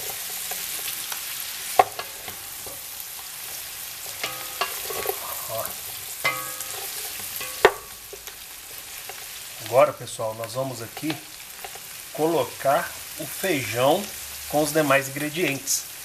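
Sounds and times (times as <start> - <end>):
meat sizzling in a pot: 0.0 - 16.0
wooden spoon knocking pot: 7.4 - 8.2.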